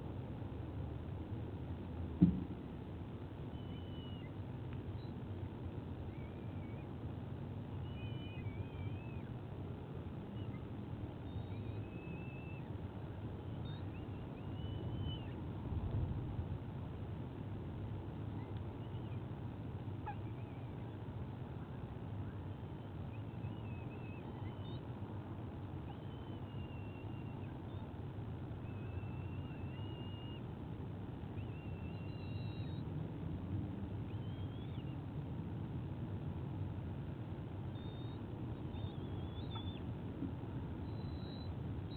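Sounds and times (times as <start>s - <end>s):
low outdoor rumble: 0.0s - 41.9s
high whistled bird calls: 7.8s - 9.3s, 10.4s - 12.8s, 13.5s - 15.4s, 21.6s - 24.9s, 25.9s - 27.9s, 28.6s - 30.5s, 31.4s - 32.8s, 34.1s - 35.0s, 37.7s - 39.9s, 40.8s - 41.9s.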